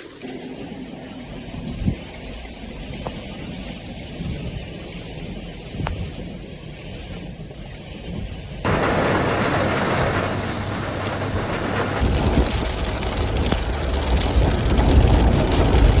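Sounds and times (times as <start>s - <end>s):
deep low rumble: 8.7s - 16.0s
heavy rain pouring: 8.7s - 16.0s.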